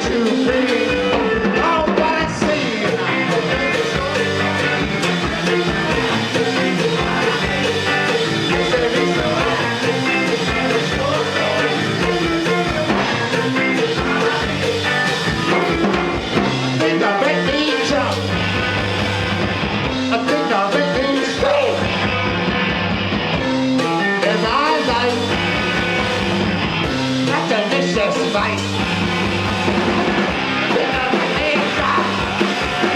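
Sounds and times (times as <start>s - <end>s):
bass guitar: 0.0s - 32.9s
drums: 0.0s - 32.9s
electric guitar: 0.0s - 32.9s.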